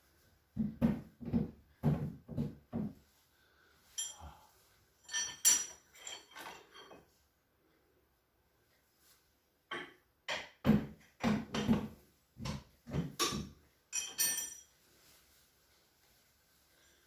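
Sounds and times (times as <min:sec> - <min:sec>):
ringing metallic clinks: 0:03.9 - 0:04.4, 0:05.0 - 0:07.0, 0:13.9 - 0:14.8.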